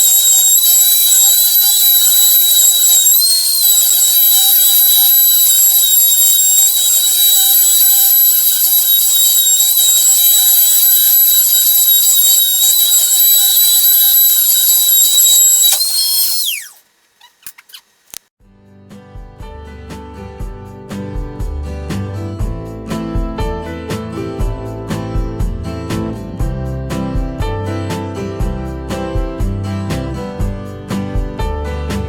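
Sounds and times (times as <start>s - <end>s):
spindle motor whine: 0.0s - 18.2s
music: 18.4s - 32.0s.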